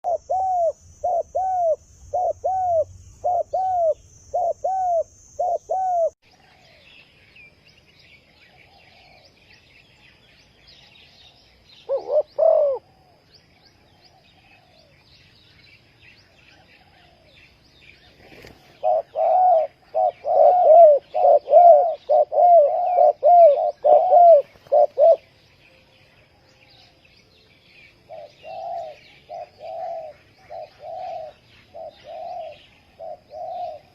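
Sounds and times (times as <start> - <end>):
dove cooing: 0.0 - 6.6, 11.8 - 13.2, 18.2 - 25.3, 28.1 - 33.9
small birds chirping: 0.0 - 33.9.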